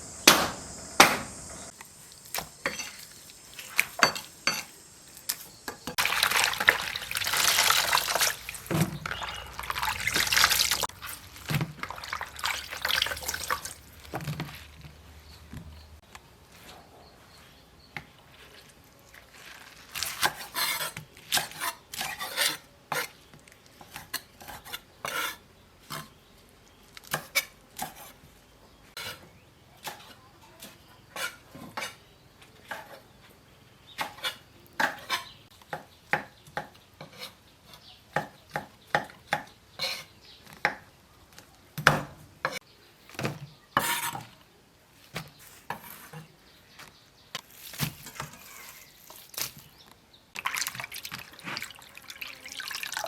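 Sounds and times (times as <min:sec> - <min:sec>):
kitchen utensils clinking: 0:02.6 - 0:04.9.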